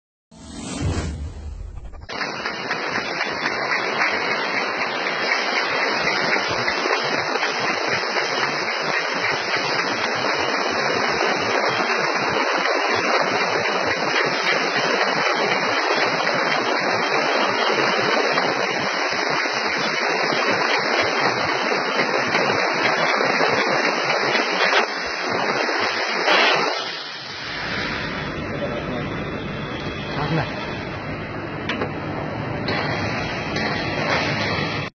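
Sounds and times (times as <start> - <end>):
laser-cutting machine hiss: 0.4 - 31.1, 32.6 - 34.9.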